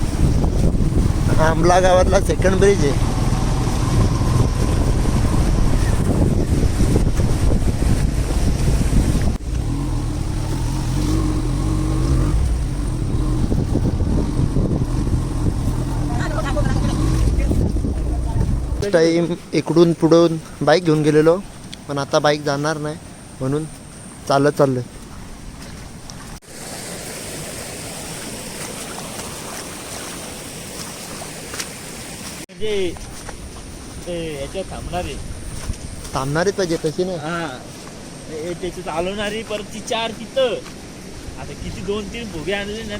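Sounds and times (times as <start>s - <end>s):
wind buffeting microphone: 0.0s - 20.7s, 32.7s - 37.1s
floodwater rushing: 0.0s - 23.2s, 24.4s - 35.2s.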